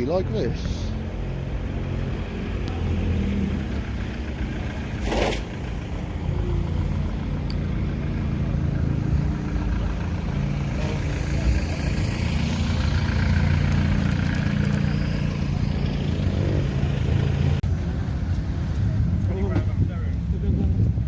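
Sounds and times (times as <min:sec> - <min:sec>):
car engines idling: 0:00.0 - 0:21.0.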